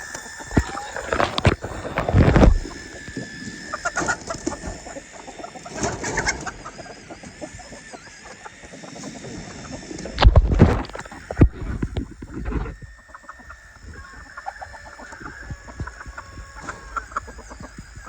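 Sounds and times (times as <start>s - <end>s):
chickens clucking: 0.0s - 18.0s
loud thumps: 2.0s - 2.9s, 10.2s - 12.8s.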